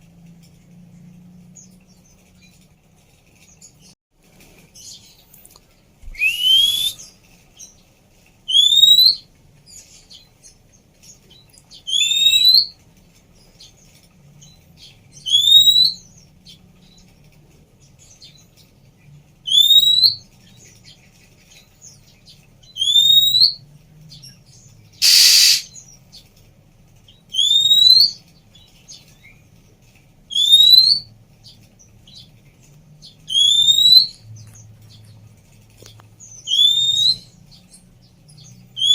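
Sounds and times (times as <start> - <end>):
bird whistling: 6.1 - 7.1, 8.5 - 9.2, 11.9 - 12.8, 15.3 - 16.0, 19.5 - 20.2, 22.8 - 23.6, 25.0 - 25.8, 27.3 - 28.2, 30.3 - 31.1, 33.3 - 34.2, 36.4 - 37.4
bird harsh rasp: 25.0 - 25.8.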